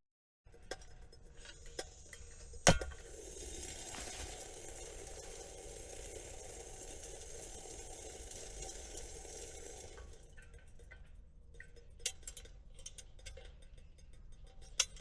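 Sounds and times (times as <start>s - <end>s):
steady hiss: 1.4s - 9.7s.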